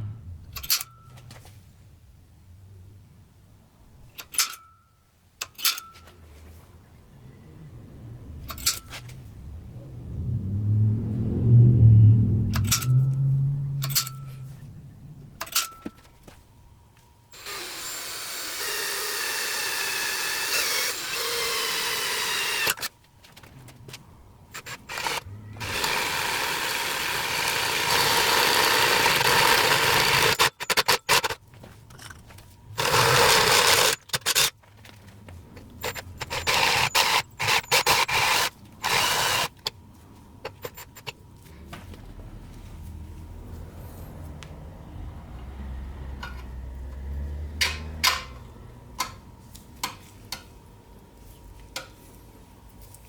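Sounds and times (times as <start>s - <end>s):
power tool running: 17.4s - 22.9s, 24.5s - 30.5s, 32.8s - 34.5s, 35.9s - 39.7s.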